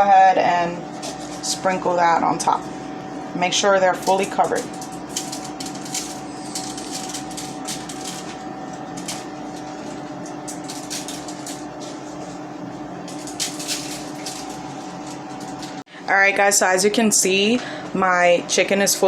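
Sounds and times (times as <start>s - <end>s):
steady low hum: 0.0s - 19.0s
sugar grains rustling: 4.0s - 8.4s.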